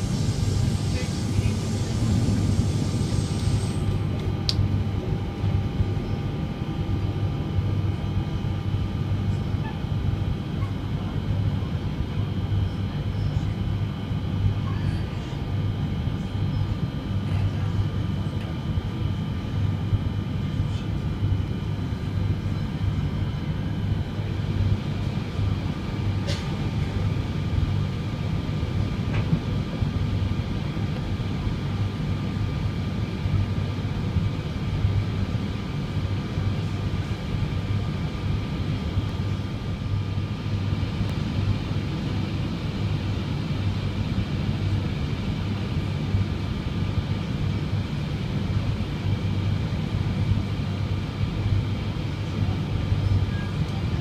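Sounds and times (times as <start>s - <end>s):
train wheels rumbling on rails: 0.0s - 4.5s
faint high whine: 0.0s - 6.4s.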